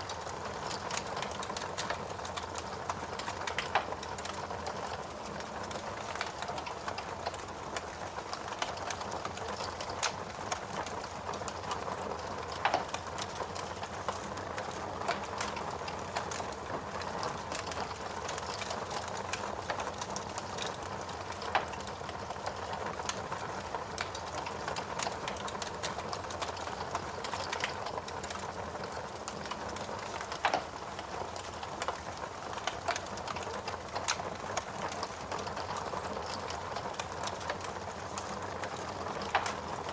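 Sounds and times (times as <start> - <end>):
wood fire crackling: 0.0 - 39.9
loud fire pops: 24.0 - 39.8.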